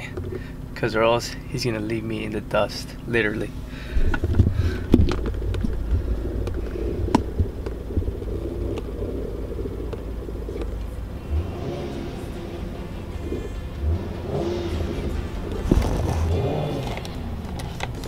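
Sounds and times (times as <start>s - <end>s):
car engine rumble: 0.0s - 18.0s
sharp clicks and knocks: 4.1s - 8.9s.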